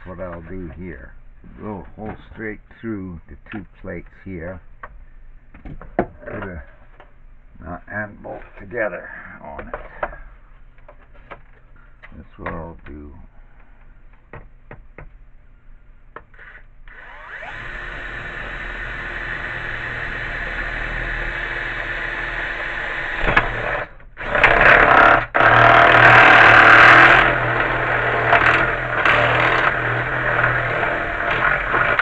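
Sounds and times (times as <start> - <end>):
electric drill boring through metal: 16.4 - 32.0.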